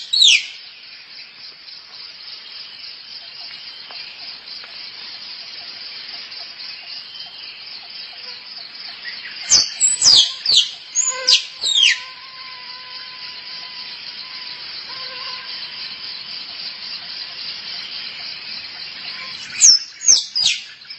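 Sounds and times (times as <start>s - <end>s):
insects buzzing: 0.0s - 20.9s
squirrel chirping: 9.6s - 12.1s.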